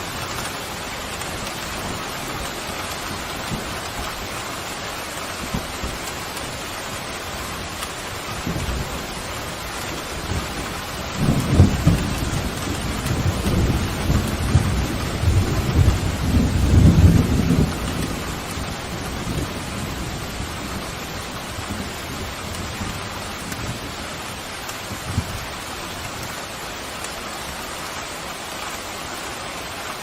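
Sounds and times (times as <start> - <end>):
heavy rain: 0.0 - 30.0
thunder rumbling: 5.3 - 26.3.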